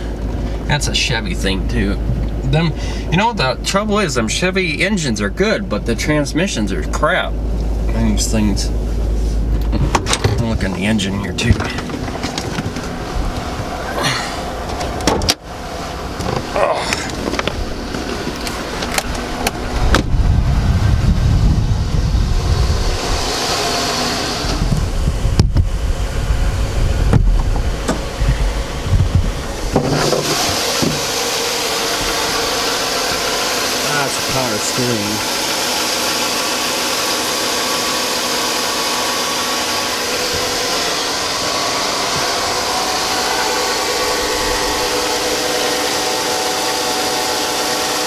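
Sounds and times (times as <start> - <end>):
car engine idling: 0.0 - 48.0
cooling fan whoosh: 7.2 - 48.0
low rumble: 7.3 - 23.7, 24.5 - 29.8.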